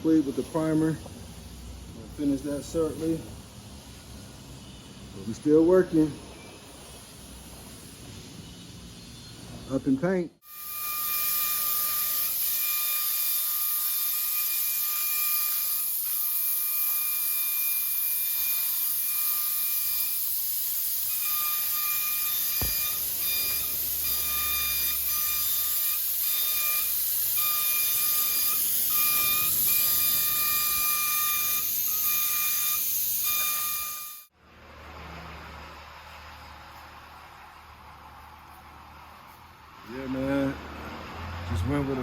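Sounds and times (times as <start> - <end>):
paint spray gun hissing: 18.0 - 33.2
high whine: 21.1 - 34.3.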